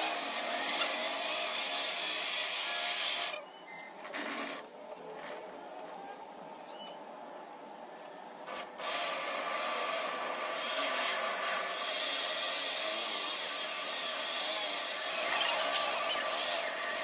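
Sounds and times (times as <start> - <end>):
power tool grinding metal: 0.0 - 3.4, 8.8 - 17.0.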